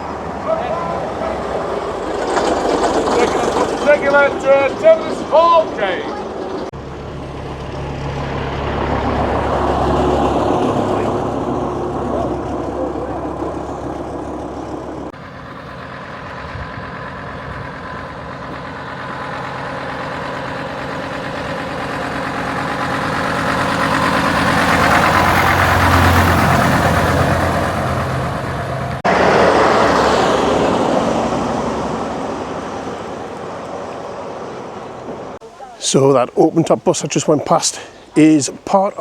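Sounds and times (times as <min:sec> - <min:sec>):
bus engine hum passing: 0:00.0 - 0:39.0
rush of vehicle noise: 0:00.0 - 0:39.0.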